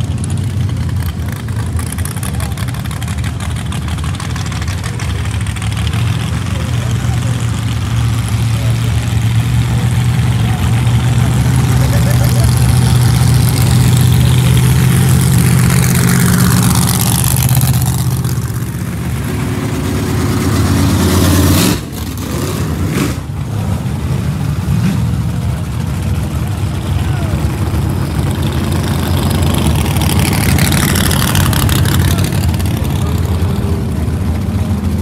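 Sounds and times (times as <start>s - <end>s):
car engines rumbling at low revs: 0.0s - 35.0s
pickup truck driving past: 0.0s - 35.0s.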